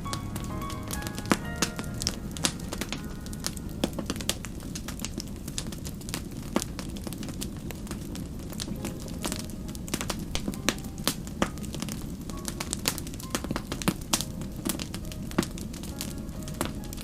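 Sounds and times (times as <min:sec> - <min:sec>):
low rumble of burning: 0:00.0 - 0:17.0
wood fire crackling and popping: 0:00.0 - 0:17.0.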